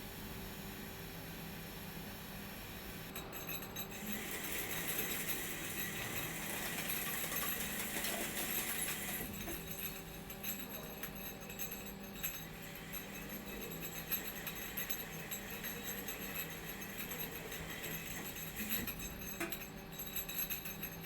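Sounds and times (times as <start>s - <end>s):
low machine hum: 0.0s - 20.9s
light metallic clinking and ticking: 3.1s - 21.0s.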